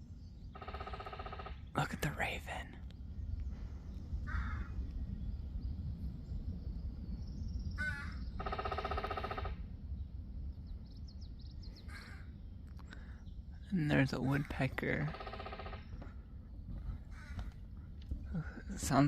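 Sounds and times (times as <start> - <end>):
raven calling: 0.5 - 2.5, 4.2 - 4.9, 7.7 - 9.7, 11.8 - 13.2, 13.9 - 18.6
low microphone rumble: 1.6 - 19.0.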